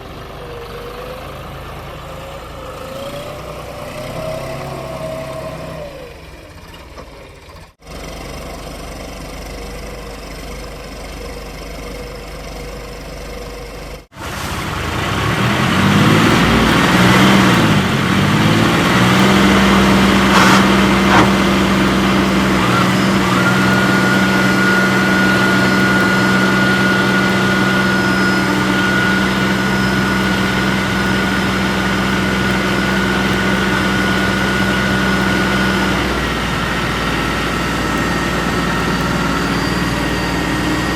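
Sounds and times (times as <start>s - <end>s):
diesel engine running: 0.0s - 40.9s
steady high whine: 16.2s - 40.9s.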